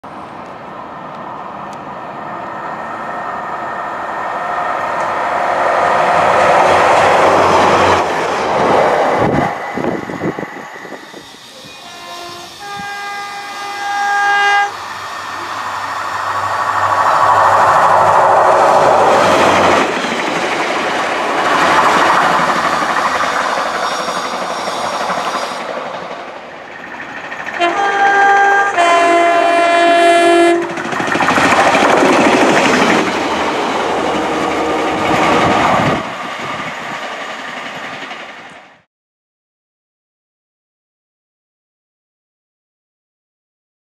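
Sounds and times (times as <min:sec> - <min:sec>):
diesel train passing at speed: 0:00.0 - 0:38.9
two-tone train horn: 0:11.6 - 0:15.8, 0:27.6 - 0:30.8.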